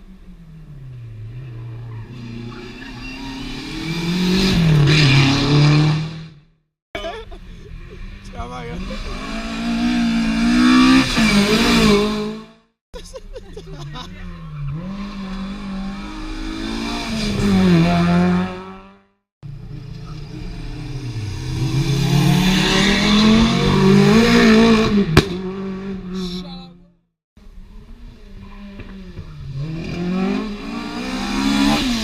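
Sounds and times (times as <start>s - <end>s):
rally car engines revving: 0.0s - 6.4s, 7.0s - 12.6s, 13.5s - 26.8s, 27.4s - 32.0s.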